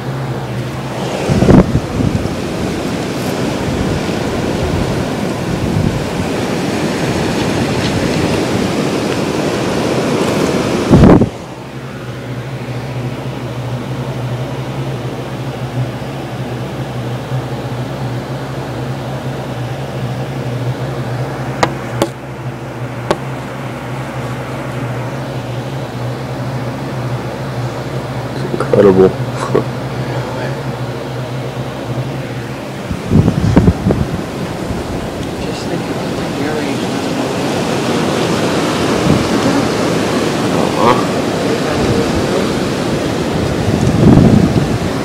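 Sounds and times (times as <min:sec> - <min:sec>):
wind gusting against microphone: 0:00.0 - 0:17.3, 0:18.1 - 0:45.0
steady low hum: 0:00.0 - 0:45.0.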